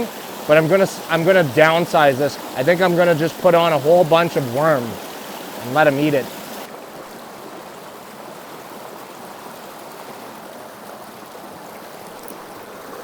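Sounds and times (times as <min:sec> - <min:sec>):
creek water running over stones: 0:00.0 - 0:13.0.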